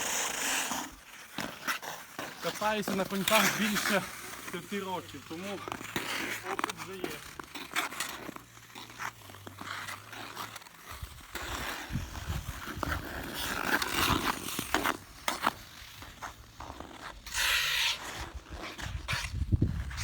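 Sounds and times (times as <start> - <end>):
skate blades scraping ice: 0.0 - 20.0.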